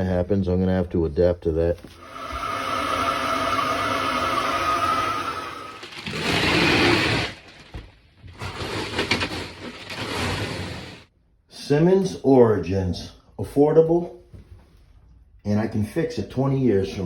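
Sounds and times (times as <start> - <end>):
power tool harsh cutting noise: 2.0 - 7.4
power tool motor whine: 2.0 - 7.4.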